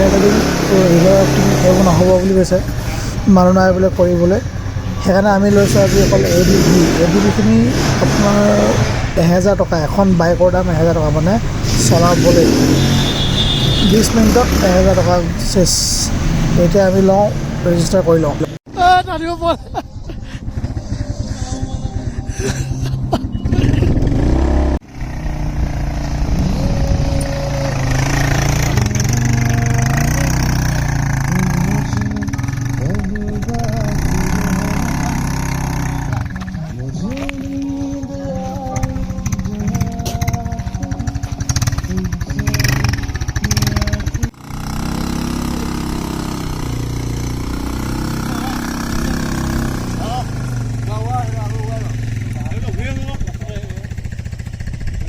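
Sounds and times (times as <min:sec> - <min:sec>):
atv engines revving: 0:00.0 - 0:55.0.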